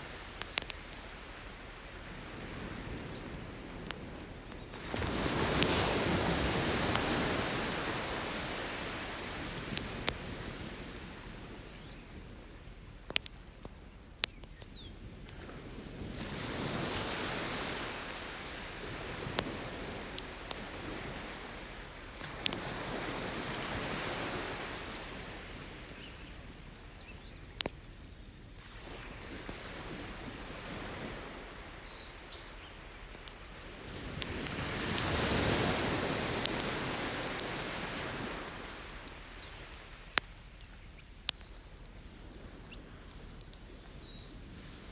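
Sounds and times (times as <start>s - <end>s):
ocean waves breaking on shore: 0.0s - 11.6s, 15.4s - 26.6s, 28.6s - 40.4s
campfire pops and crackles: 0.0s - 44.9s.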